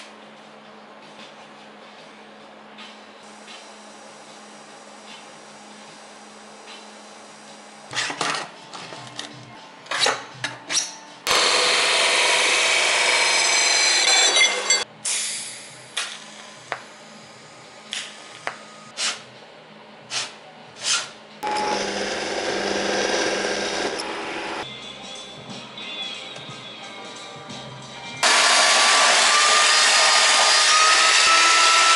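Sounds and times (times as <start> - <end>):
drill press boring steel: 11.3 - 14.8, 21.4 - 24.6, 28.2 - 31.9.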